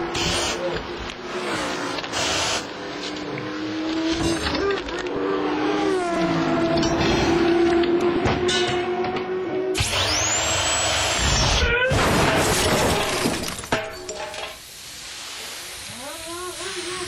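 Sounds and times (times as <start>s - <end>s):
pneumatic wheel gun whining: 0.1s - 0.6s, 1.4s - 2.7s, 9.8s - 12.0s
crash-like noise: 11.4s - 14.6s.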